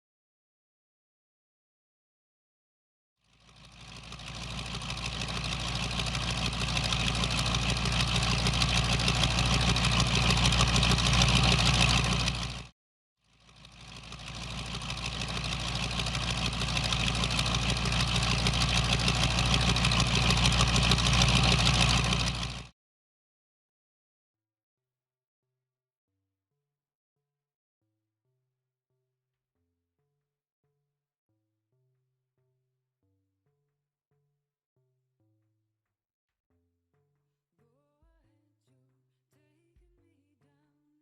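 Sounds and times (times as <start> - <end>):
car engine running: 3.4 - 12.7, 13.5 - 22.7.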